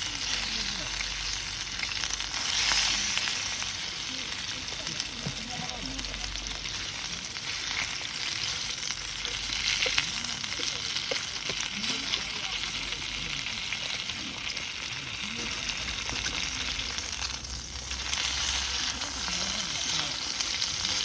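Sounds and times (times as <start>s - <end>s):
food sizzling in a pan: 0.0s - 21.0s.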